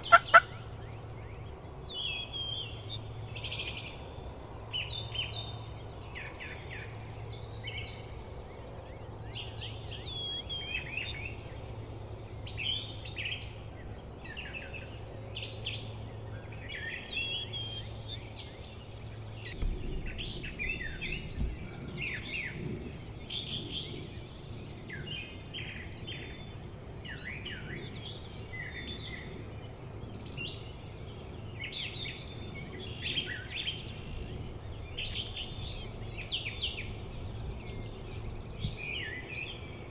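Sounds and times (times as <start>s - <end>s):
low hum: 0.0s - 39.9s
songbirds chirping and singing: 0.0s - 39.9s
low thumps: 19.6s - 22.0s.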